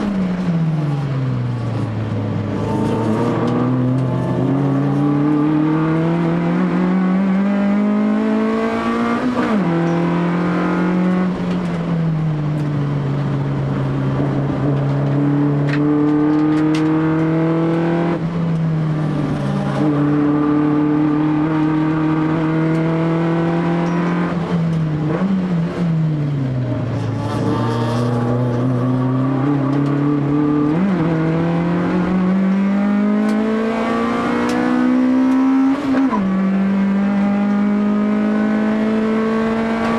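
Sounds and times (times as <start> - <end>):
racing car engine revving: 0.0 - 11.6, 13.9 - 26.0, 26.6 - 39.9.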